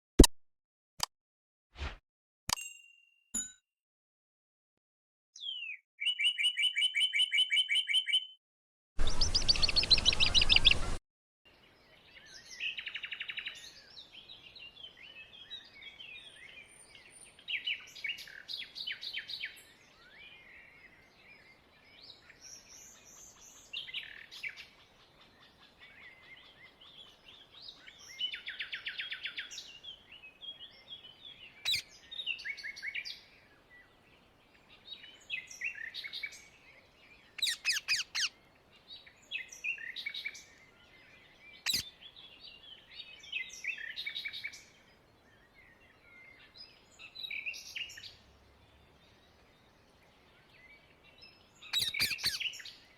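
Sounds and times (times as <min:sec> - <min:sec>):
parakeets screeching: 0:37.4 - 0:38.3, 0:51.8 - 0:52.4.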